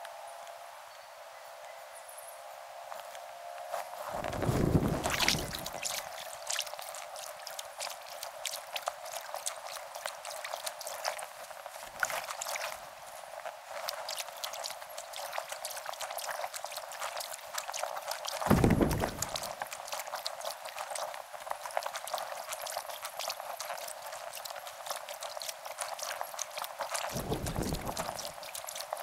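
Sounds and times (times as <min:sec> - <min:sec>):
water splashing off paddles: 0:04.2 - 0:06.8, 0:18.4 - 0:19.8, 0:27.1 - 0:29.0
low rumbles: 0:18.5 - 0:19.4, 0:27.2 - 0:28.2.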